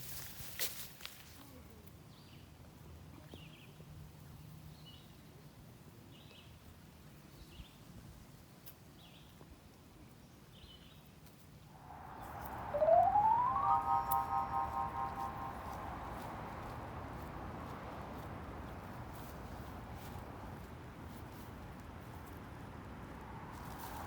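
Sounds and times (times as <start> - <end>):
rising whoosh: 11.8 - 16.6.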